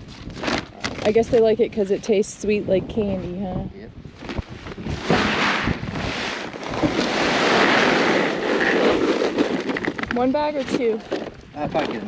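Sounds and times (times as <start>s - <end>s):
bag knocking: 6.5s - 12.0s.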